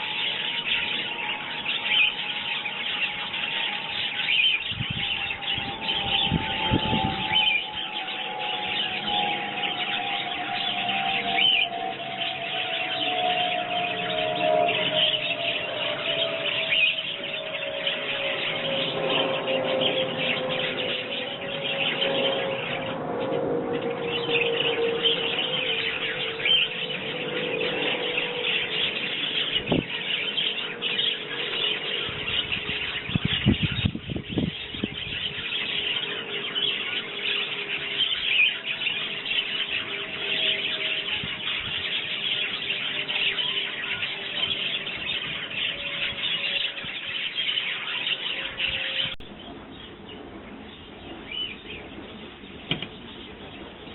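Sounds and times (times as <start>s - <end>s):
small birds chirping: 0.0s - 53.9s
passing vehicle engine hum: 4.8s - 38.0s.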